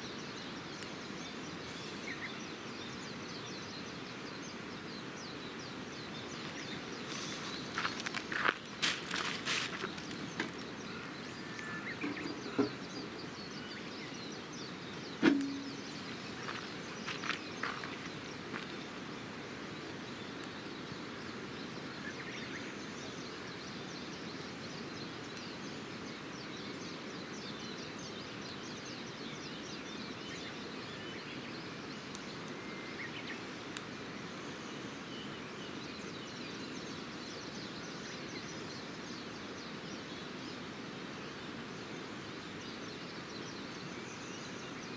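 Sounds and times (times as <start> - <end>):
faint bird chirps: 0.0 - 25.8
campfire snaps and knocks: 15.0 - 16.6.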